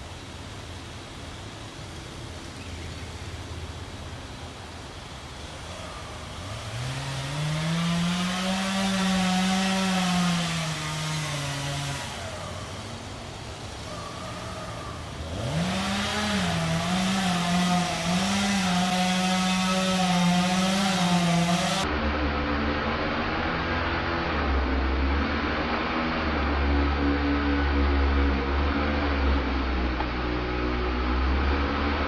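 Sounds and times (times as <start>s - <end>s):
chainsaw revving and cutting: 5.1s - 21.9s, 25.6s - 32.0s.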